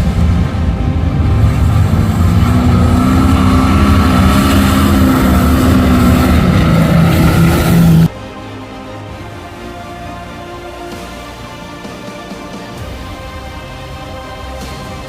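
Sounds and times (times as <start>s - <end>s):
truck engine at high revs: 0.0s - 8.1s.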